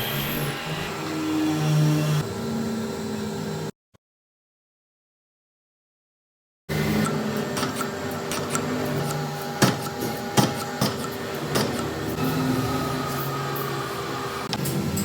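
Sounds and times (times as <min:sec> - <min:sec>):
metal lathe humming: 0:06.7 - 0:14.5
sharp metallic knocks: 0:09.6 - 0:12.0.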